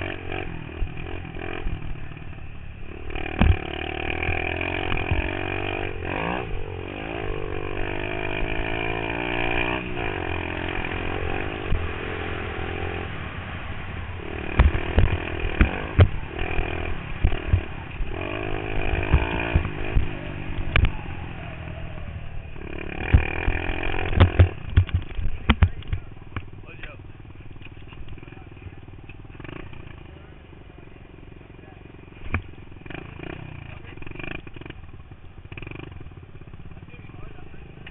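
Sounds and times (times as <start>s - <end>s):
pit bike engine revving: 0.0s - 37.9s
sharp knocks and thumps: 3.2s - 5.3s, 14.5s - 18.1s, 18.7s - 21.0s, 23.0s - 26.5s, 32.2s - 32.5s.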